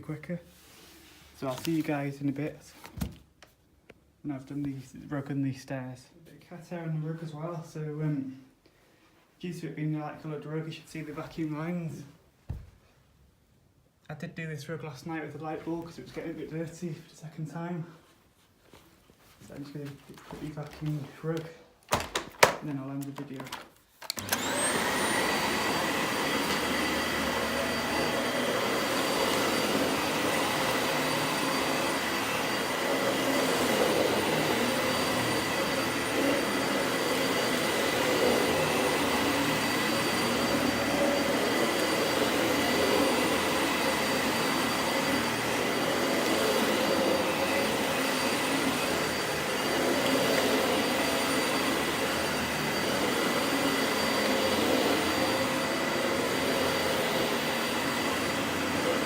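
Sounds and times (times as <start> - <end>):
vacuum cleaner running: 19.5 - 59.0.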